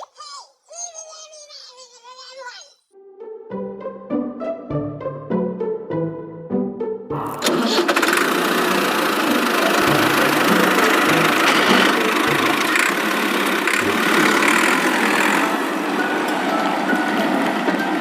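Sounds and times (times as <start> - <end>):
motor whirring: 7.3 - 16.2.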